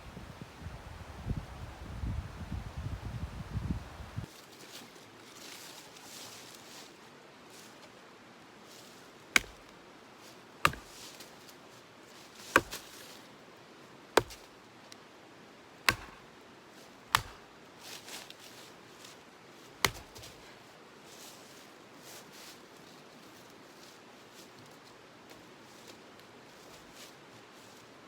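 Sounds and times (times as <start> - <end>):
firewood being chopped: 9.4 - 9.8, 10.6 - 11.1, 12.4 - 13.0, 14.2 - 14.5, 15.8 - 16.3, 17.1 - 17.5, 19.8 - 20.4.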